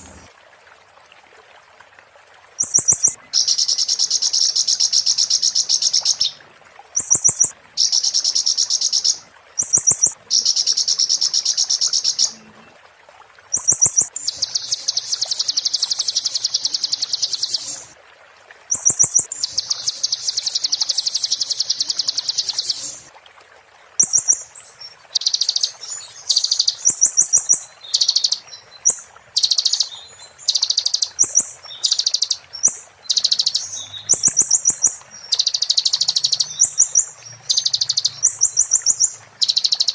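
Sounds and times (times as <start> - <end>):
bird singing rattling trill: 33.1 - 39.9.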